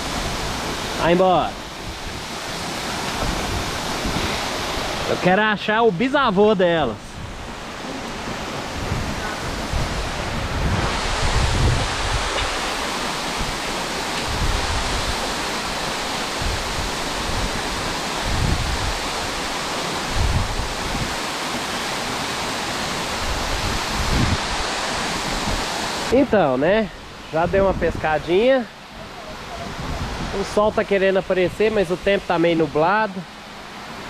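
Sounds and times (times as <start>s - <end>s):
waterfall rushing: 0.0s - 34.0s
wind rumbling on microphone: 1.6s - 5.1s, 6.9s - 21.3s, 22.7s - 26.1s, 27.1s - 28.3s, 28.9s - 32.2s.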